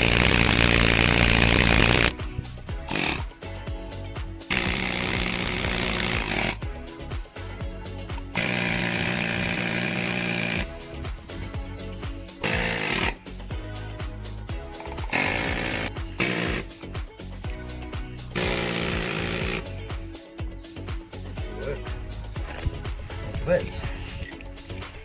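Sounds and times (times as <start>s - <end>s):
handheld power tool running: 0.0s - 2.2s, 2.9s - 3.4s, 4.5s - 6.6s, 8.4s - 10.7s, 12.4s - 13.2s, 14.8s - 16.7s, 18.3s - 19.8s
background music: 0.0s - 25.0s.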